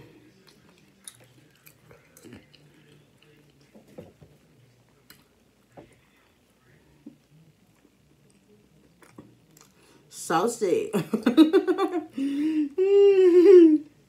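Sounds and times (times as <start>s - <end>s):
quiet chewing: 0.0s - 10.1s.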